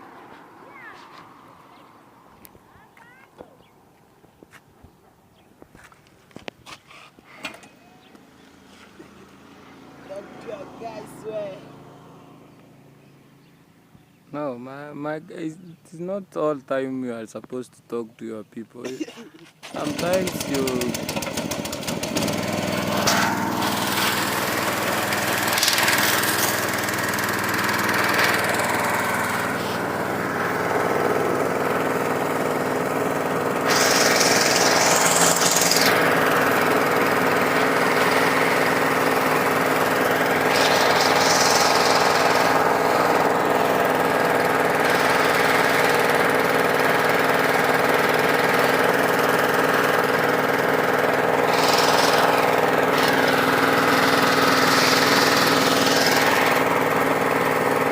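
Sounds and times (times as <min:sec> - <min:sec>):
small engine running: 0:06.9 - 0:13.6, 0:19.6 - 0:57.9.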